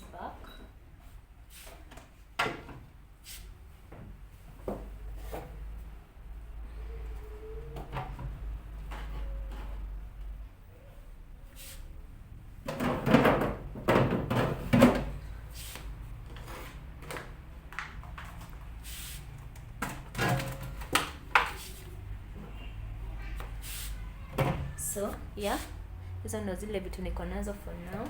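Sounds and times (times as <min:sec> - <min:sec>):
containers knocking and rattling: 0:12.6 - 0:15.2.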